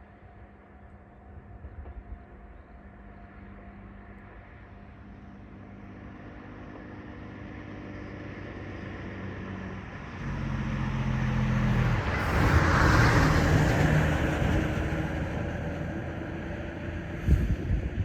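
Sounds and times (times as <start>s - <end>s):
vehicle passing by: 7.5s - 17.9s.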